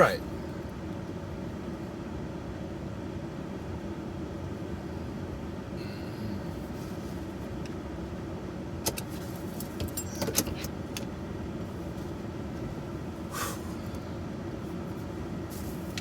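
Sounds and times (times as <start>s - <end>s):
truck engine running: 0.0s - 1.8s.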